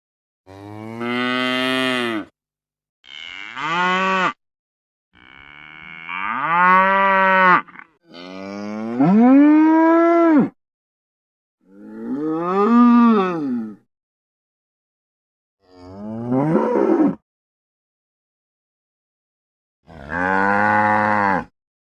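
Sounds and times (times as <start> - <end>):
ox mooing: 19.9 - 21.5.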